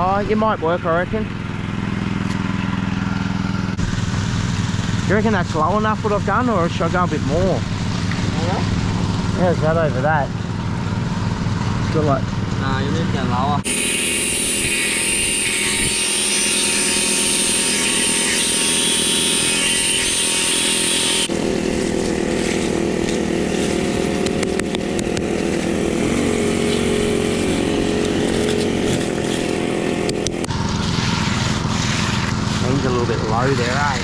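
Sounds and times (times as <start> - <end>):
small petrol engine under load: 13.6 - 34.0.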